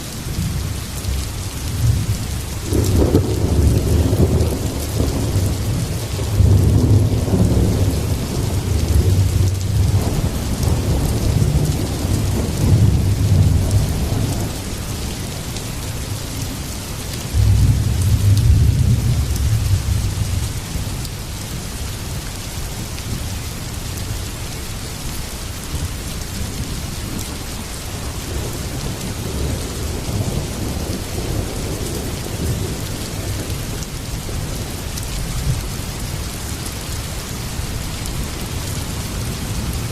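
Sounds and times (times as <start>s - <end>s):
heavy rain: 0.0s - 39.9s
thunder rumbling: 0.3s - 16.4s, 17.3s - 20.8s, 26.4s - 35.8s.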